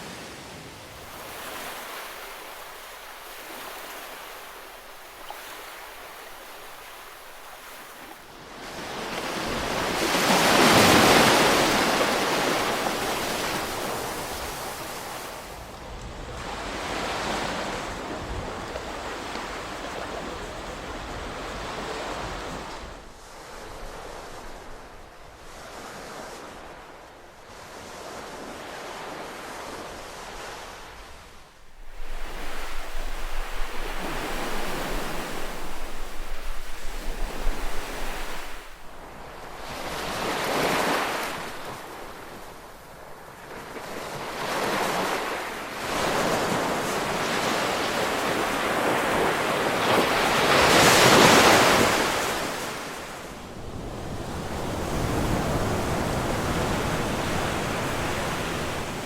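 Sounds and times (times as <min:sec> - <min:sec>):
ocean waves washing: 0:00.0 - 0:59.0.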